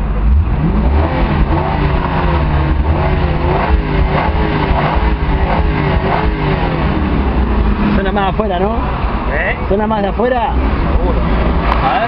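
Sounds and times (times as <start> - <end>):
car engine running hard: 0.0 - 12.0.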